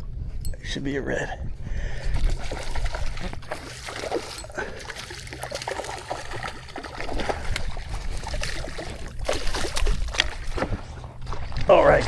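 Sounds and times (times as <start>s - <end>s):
water trickling and splashing: 1.9s - 12.0s.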